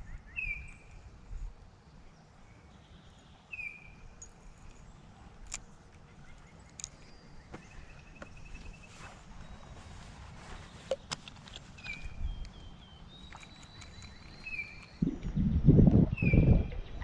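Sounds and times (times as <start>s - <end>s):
sharp clicks: 10.9s - 15.3s
creek low rumble: 11.6s - 17.0s.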